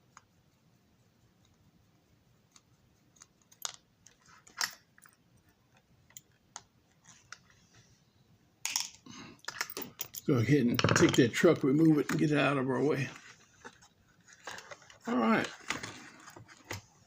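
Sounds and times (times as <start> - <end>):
small clicks and taps of parts: 2.5 - 7.5.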